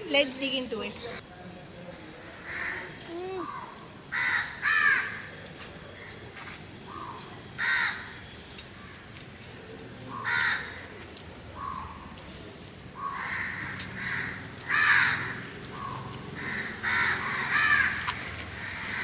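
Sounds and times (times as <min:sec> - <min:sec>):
crows cawing: 0:02.4 - 0:05.3, 0:06.9 - 0:08.2, 0:10.1 - 0:10.9, 0:13.0 - 0:19.0.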